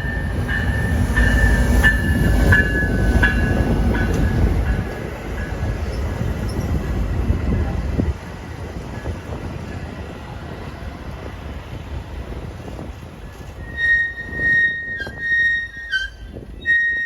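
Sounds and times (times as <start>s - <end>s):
wheels clicking over rail joints: 0.0s - 10.3s
low rumble of railroad cars: 0.0s - 17.0s
train wheel squeal: 13.3s - 17.0s.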